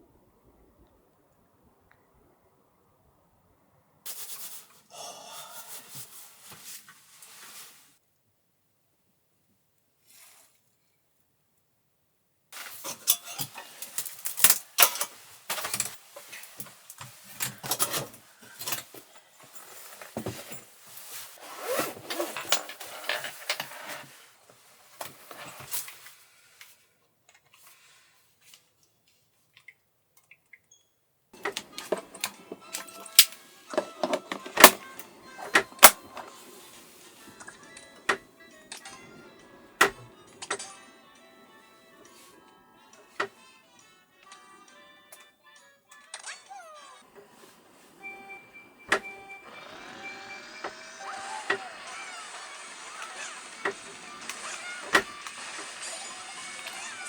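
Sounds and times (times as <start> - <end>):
objects clicking and knocking: 12.6 - 19.1, 31.4 - 36.5.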